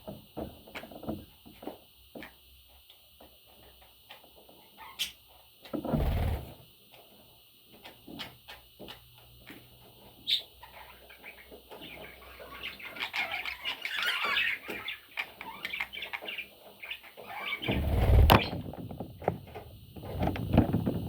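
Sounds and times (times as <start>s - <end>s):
budgerigars chirping and warbling: 10.2s - 18.6s.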